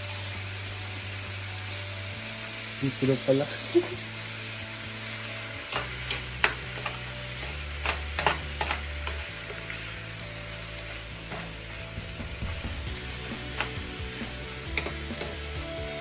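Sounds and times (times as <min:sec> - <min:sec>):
food sizzling in a frying pan: 0:00.0 - 0:16.0
utensils scraping a pan: 0:05.7 - 0:07.1, 0:07.8 - 0:09.6.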